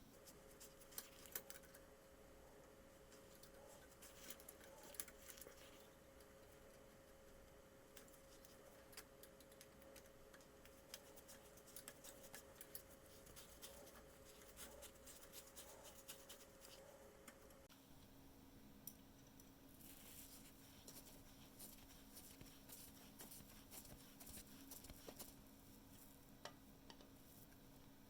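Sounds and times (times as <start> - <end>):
faint steady hum: 0.0 - 28.0
faint small clicks and ticks: 3.1 - 18.1.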